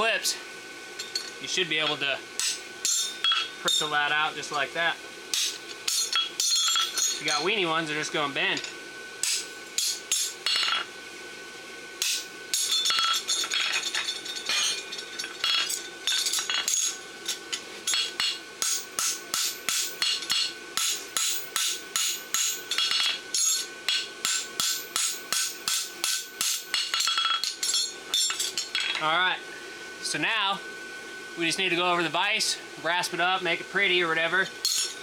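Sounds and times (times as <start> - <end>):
anvil ringing: 2.4 - 3.9, 5.4 - 7.4, 17.9 - 28.9
hammer striking on anvil: 2.4 - 3.9, 5.4 - 7.2, 9.2 - 10.8, 12.0 - 13.6, 17.9 - 29.0.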